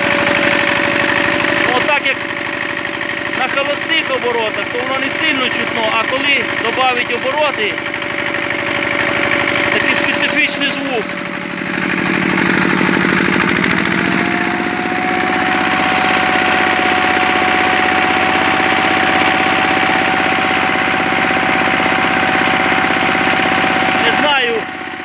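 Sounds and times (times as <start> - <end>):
engine revving: 0.0 - 25.0.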